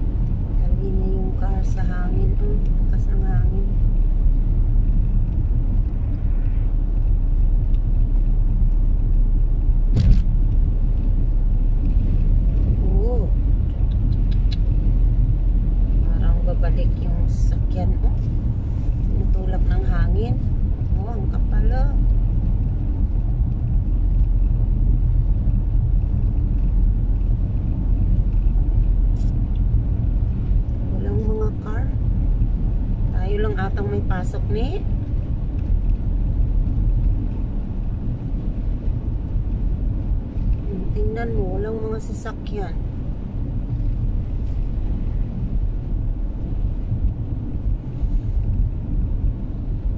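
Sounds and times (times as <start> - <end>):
car driving rumble: 0.0 - 49.9.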